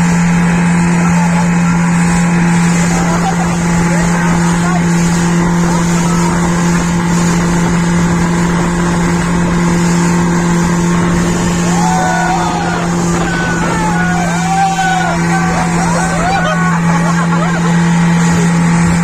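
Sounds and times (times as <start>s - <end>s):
boat motor humming: 0.0s - 19.0s
faint voices: 0.5s - 7.4s, 10.9s - 18.9s.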